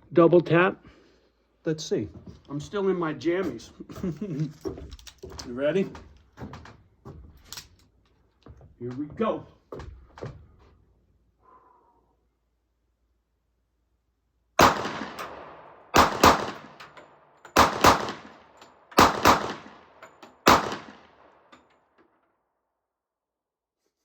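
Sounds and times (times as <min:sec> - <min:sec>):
handgun shots with echo: 0:14.6 - 0:21.3.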